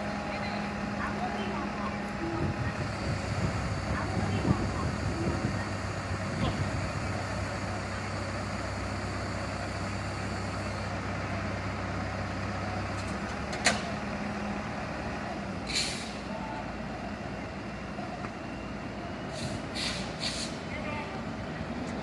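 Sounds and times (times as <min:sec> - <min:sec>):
truck engine running: 0:00.0 - 0:22.0
air hiss: 0:19.3 - 0:20.6.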